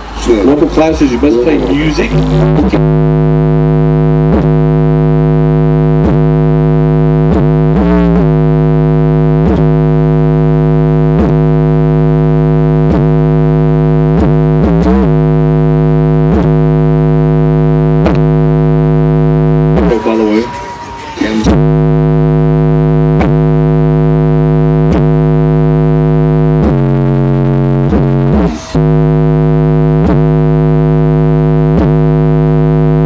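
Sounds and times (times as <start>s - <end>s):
loud steady bass tone: 0.0s - 33.0s.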